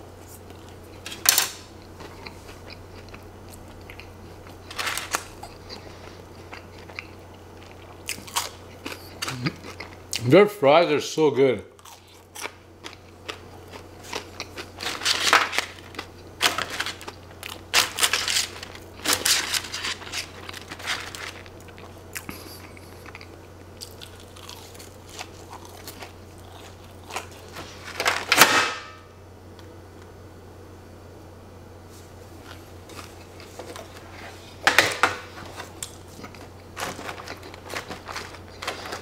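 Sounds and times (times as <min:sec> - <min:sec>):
chewing and wet mouth sounds: 0:01.8 - 0:10.2, 0:11.8 - 0:14.8, 0:21.4 - 0:27.5.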